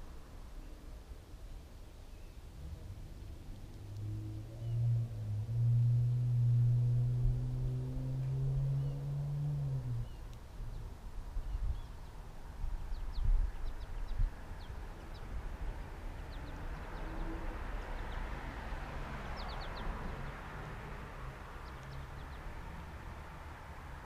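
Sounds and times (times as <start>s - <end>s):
low rumble: 2.5s - 11.8s
small birds chirping: 9.9s - 20.5s, 21.5s - 23.0s.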